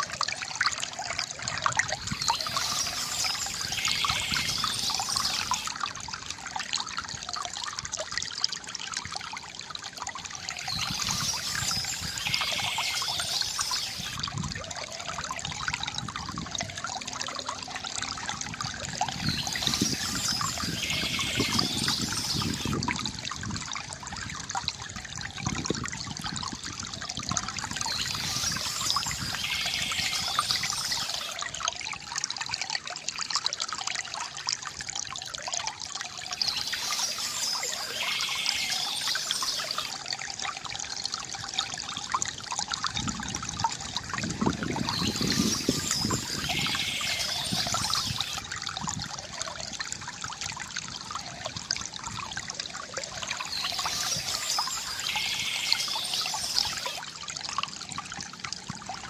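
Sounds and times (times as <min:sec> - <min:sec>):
water trickling from fountain: 0:00.0 - 0:59.0
birds chirping: 0:02.0 - 0:05.7, 0:10.5 - 0:14.2, 0:19.1 - 0:22.8, 0:27.7 - 0:31.4, 0:36.3 - 0:39.9, 0:44.8 - 0:48.4, 0:53.4 - 0:57.0.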